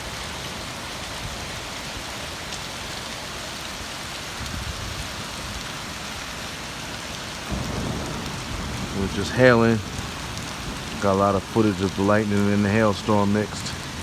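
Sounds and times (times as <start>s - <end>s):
heavy rain pouring: 0.0s - 14.0s
low thunder rumble: 7.5s - 14.0s.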